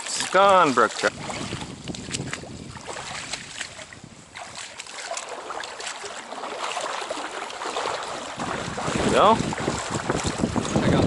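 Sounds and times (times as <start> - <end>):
small splashes: 0.0 - 11.0
stream water running: 0.0 - 11.0
wind on microphone: 1.0 - 4.8, 7.8 - 11.0.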